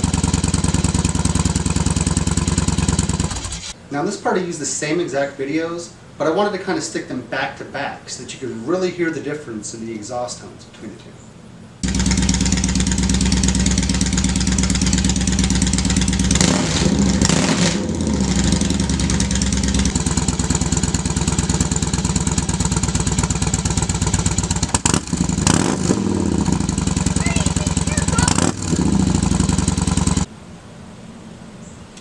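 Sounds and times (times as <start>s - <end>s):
motorcycle engine idling and revving: 0.0s - 3.8s, 11.8s - 30.3s.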